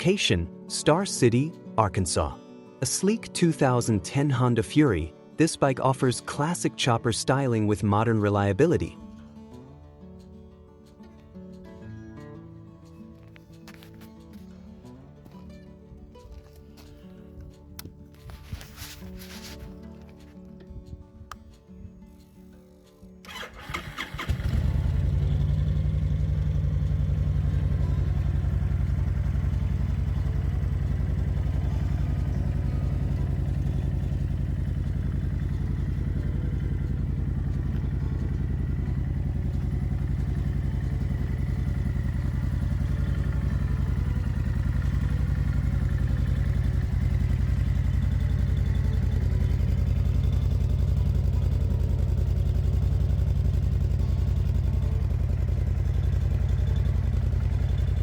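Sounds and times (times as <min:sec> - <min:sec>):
motorcycle engine starting and idling: 0:12.8 - 0:58.0.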